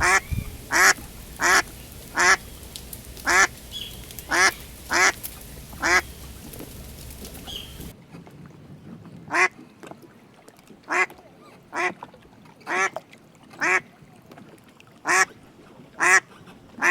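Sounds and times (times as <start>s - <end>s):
duck quacking: 0.0s - 7.9s, 16.0s - 16.2s.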